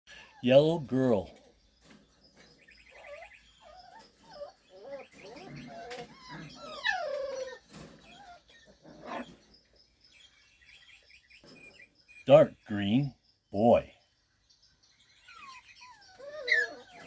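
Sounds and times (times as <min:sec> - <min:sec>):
puppy whimpering and squeaking: 0:02.4 - 0:09.6, 0:15.2 - 0:17.0.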